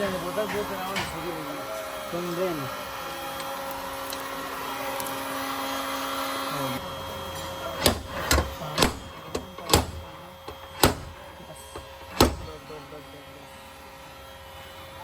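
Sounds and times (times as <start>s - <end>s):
power tool running: 7.8s - 12.6s.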